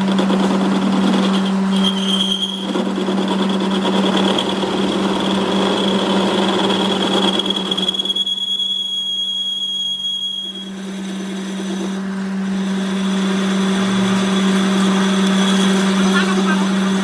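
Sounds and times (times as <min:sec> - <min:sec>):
shop machinery humming and whining: 0:00.0 - 0:17.0.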